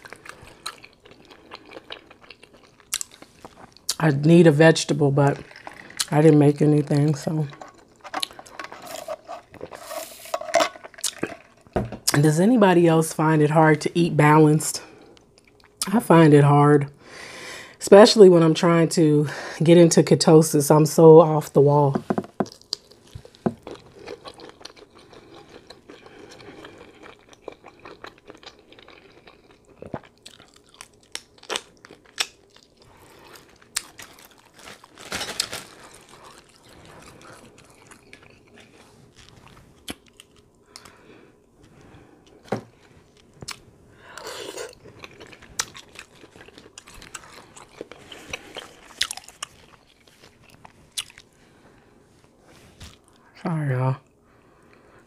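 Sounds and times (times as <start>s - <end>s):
person chewing shrimp: 0.0s - 4.0s, 5.4s - 6.2s, 7.6s - 11.8s, 15.0s - 15.8s, 22.4s - 51.4s.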